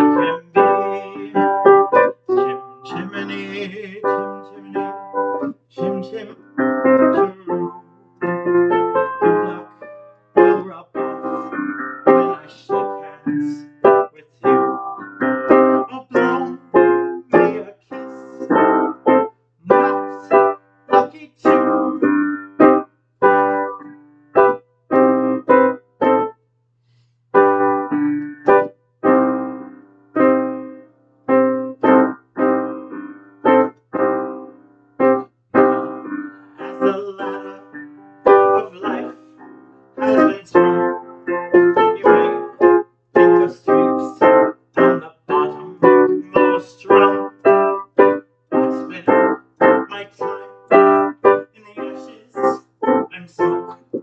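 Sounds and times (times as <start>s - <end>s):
piano chords ringing: 0.0s - 26.3s, 27.4s - 54.0s.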